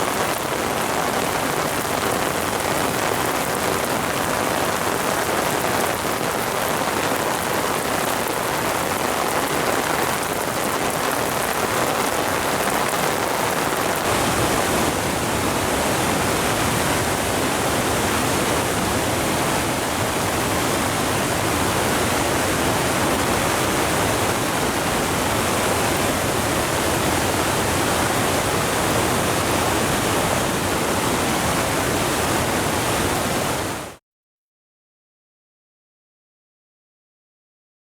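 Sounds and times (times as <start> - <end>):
waterfall rushing: 12.5 - 34.0.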